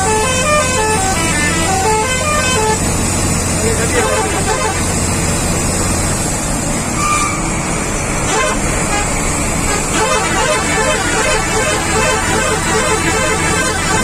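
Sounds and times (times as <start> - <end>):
truck horn toot: 0.0 - 2.9, 3.9 - 5.0, 7.0 - 7.5, 8.2 - 14.0
heavy truck engine drone: 0.0 - 14.0
road noise: 0.0 - 14.0.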